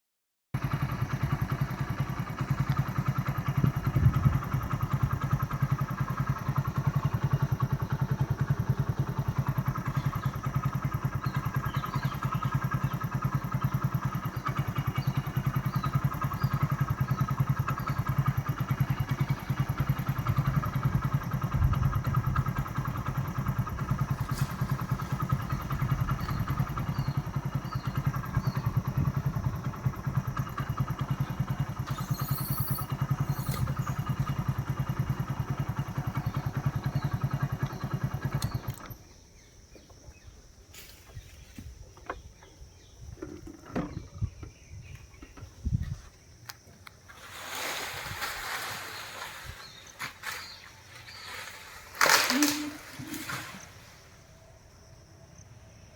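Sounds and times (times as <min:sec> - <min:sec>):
small engine running: 0:00.6 - 0:55.9
faint high chirps: 0:31.8 - 0:34.2.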